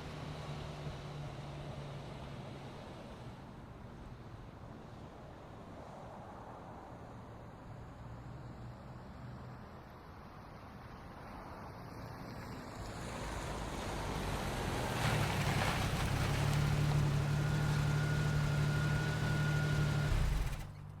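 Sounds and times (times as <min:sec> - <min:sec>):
road noise: 0:00.0 - 0:21.0
car engine drone: 0:13.2 - 0:21.0.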